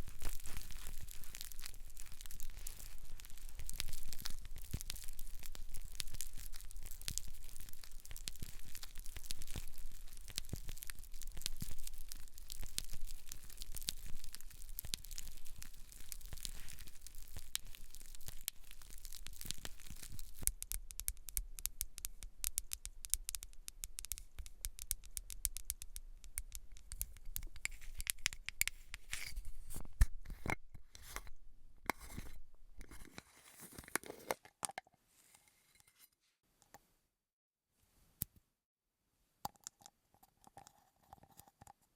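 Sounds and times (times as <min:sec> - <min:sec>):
hair crackling over scalp: 0:00.0 - 0:21.0.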